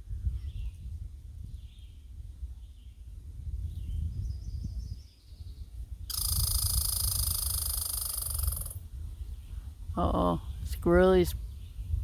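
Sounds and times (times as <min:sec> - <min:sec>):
squirrel chattering rattle: 0:06.1 - 0:08.8.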